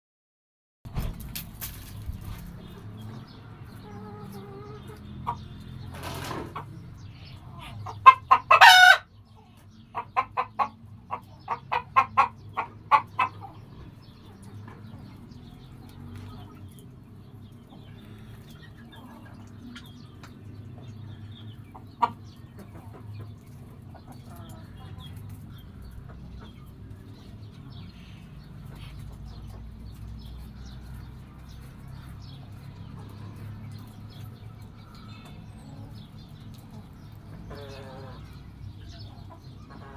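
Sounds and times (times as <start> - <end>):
chickens clucking: 1.4 - 39.9
chicken drawn-out call: 7.5 - 9.1, 37.4 - 38.4.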